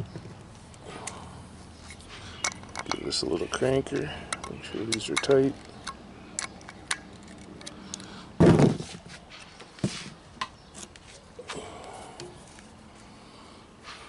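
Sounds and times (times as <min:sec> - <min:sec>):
hand tools clicking on metal screws: 0:01.8 - 0:08.1.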